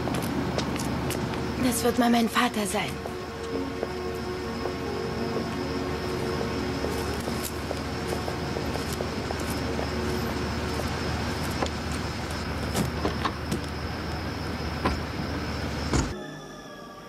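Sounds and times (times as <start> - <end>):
car door shutting: 15.9 - 16.2.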